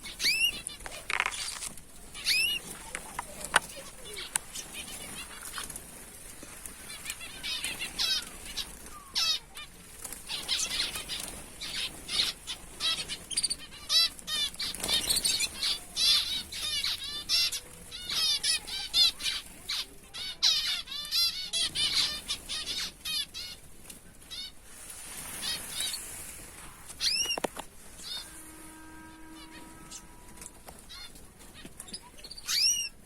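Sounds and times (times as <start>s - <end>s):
finches chirping: 0.0s - 5.6s, 27.0s - 28.3s, 31.8s - 33.0s
wings fluttering: 0.0s - 33.0s.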